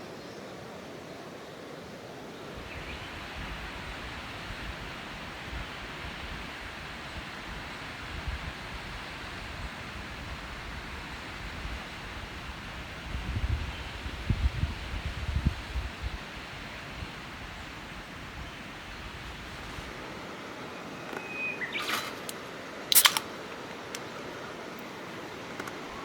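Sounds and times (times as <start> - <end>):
steady outdoor rushing noise: 1.3 - 21.1
wind buffeting microphone: 2.4 - 20.1.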